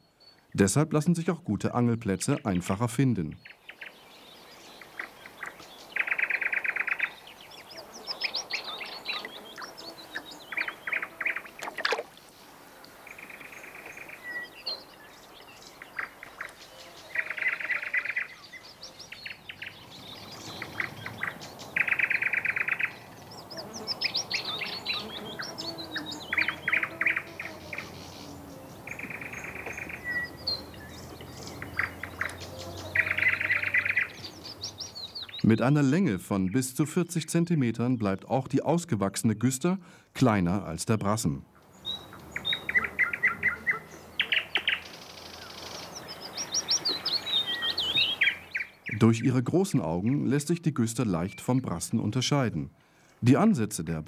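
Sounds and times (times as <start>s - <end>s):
songbird trill: 0.0s - 39.6s, 40.5s - 53.4s.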